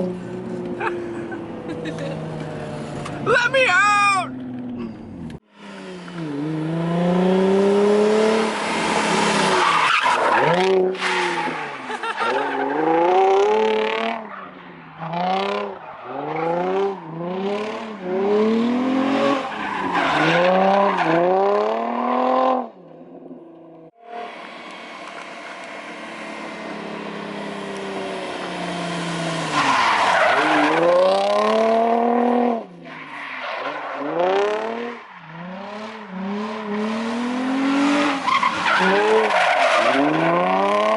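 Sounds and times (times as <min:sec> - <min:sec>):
car engine revving: 0:04.3 - 0:22.8, 0:23.6 - 0:32.9, 0:33.6 - 0:40.9
tyre squeal: 0:38.2 - 0:40.4.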